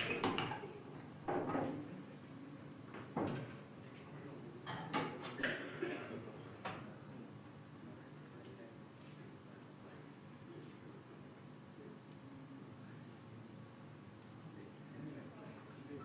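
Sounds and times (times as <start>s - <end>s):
pool balls clacking: 0.0s - 0.7s.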